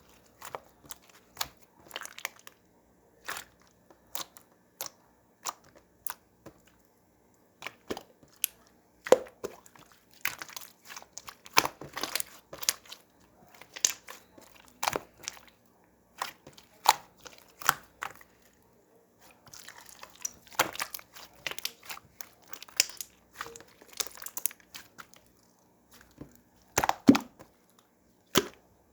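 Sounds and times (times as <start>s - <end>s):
slime squished by hand: 7.6s - 18.5s, 19.2s - 27.6s.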